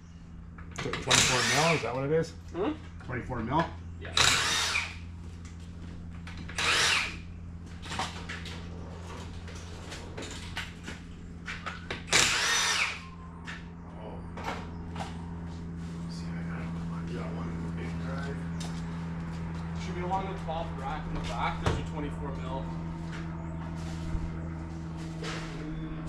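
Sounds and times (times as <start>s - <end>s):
steady low hum: 0.0s - 26.0s
power tool bursts: 0.9s - 2.0s, 4.1s - 5.0s, 6.5s - 7.2s, 12.1s - 13.0s.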